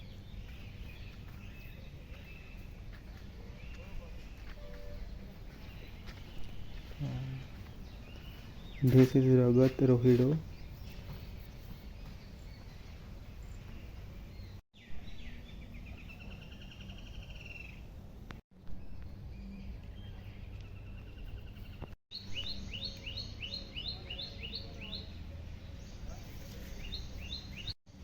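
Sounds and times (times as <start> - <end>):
low outdoor rumble: 0.0 - 22.8
birds calling and singing: 0.0 - 27.8.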